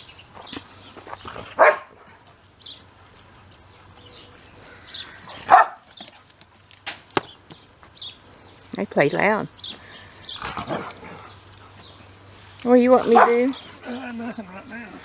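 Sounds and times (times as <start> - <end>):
dog barking: 1.6 - 1.9, 5.4 - 5.9, 13.1 - 13.5.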